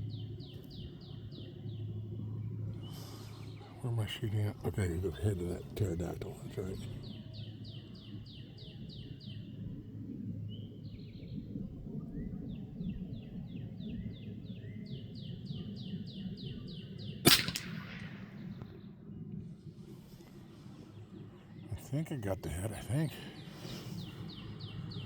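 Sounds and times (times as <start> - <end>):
bird chirping: 0.0 - 9.6, 12.1 - 18.8, 20.0 - 25.0
rifle shot with echo: 17.2 - 18.8.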